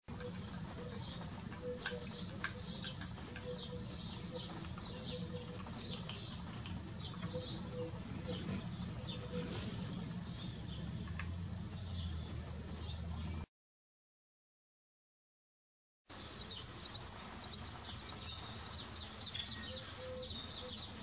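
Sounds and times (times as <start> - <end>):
birds chirping: 0.0 - 13.5, 16.1 - 21.0.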